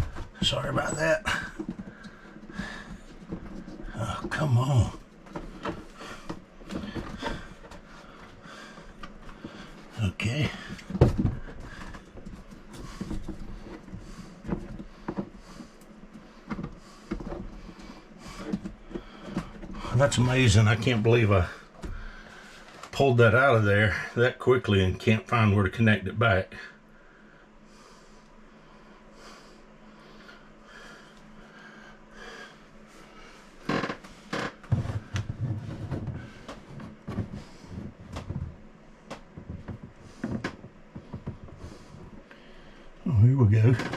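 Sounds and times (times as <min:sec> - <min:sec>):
bumps rustles and knocks: 0:00.0 - 0:23.2, 0:30.9 - 0:42.8
faint breathing: 0:01.2 - 0:04.2, 0:05.3 - 0:20.0, 0:21.3 - 0:22.9, 0:26.5 - 0:38.4, 0:39.9 - 0:43.0.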